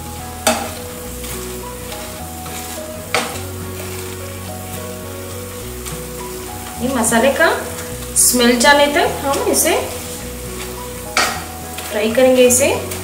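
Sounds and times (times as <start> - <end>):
food sizzling in a frying pan: 0.0 - 13.0
masher knocking against pan: 11.2 - 11.5.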